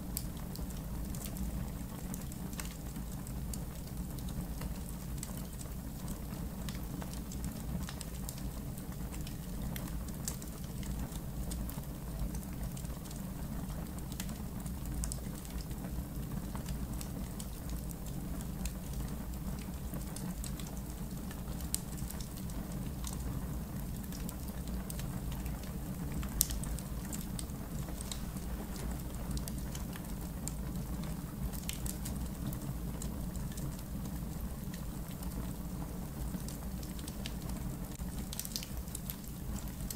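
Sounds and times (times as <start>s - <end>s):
campfire crackling: 12.2s - 39.9s.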